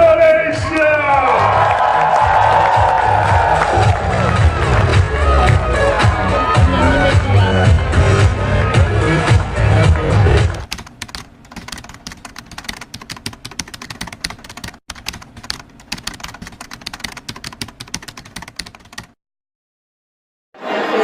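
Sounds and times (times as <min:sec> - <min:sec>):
loud music with heavy bass: 0:02.2 - 0:10.7
fast irregular clicking: 0:10.6 - 0:19.2.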